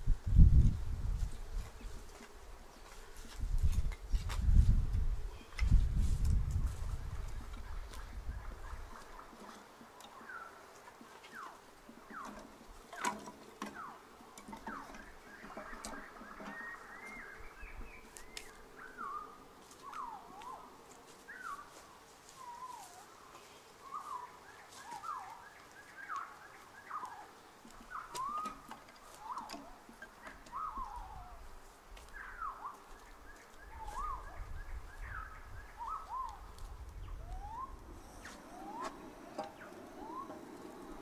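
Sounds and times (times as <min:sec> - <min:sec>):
bird chirping: 0:11.2 - 0:20.7, 0:22.4 - 0:41.0.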